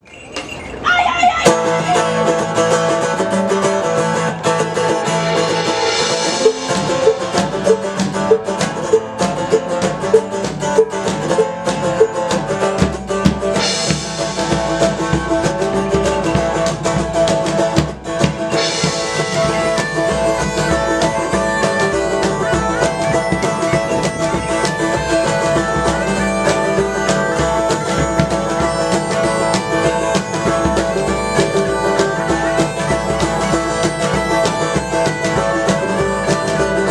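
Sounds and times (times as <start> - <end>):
drums: 0.0 - 36.9
folk band playing: 0.0 - 36.9
plucked strings: 1.4 - 36.9
steady drone: 2.3 - 8.8, 18.4 - 36.9.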